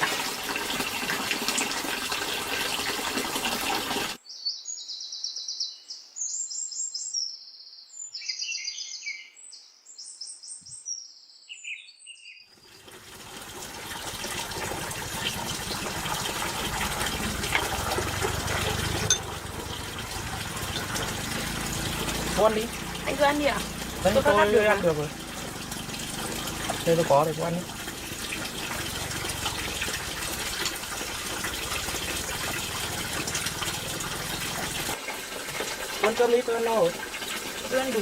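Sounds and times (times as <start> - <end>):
small birds chirping: 4.2 - 12.6.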